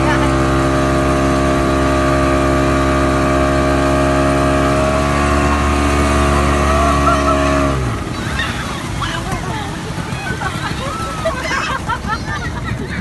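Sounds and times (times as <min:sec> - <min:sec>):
motorboat engine running: 0:00.0 - 0:13.0
faint voices: 0:08.1 - 0:13.0.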